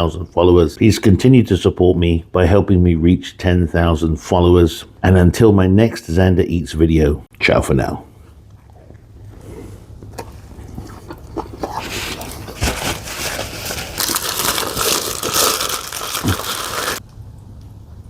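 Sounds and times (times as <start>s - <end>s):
food wrapping crinkling: 11.6s - 17.0s.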